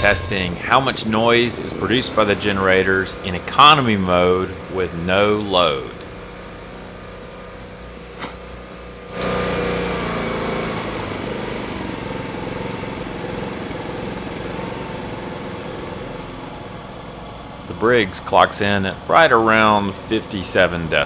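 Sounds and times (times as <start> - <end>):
short click: 8.2 - 8.6
generator engine running: 9.1 - 21.0.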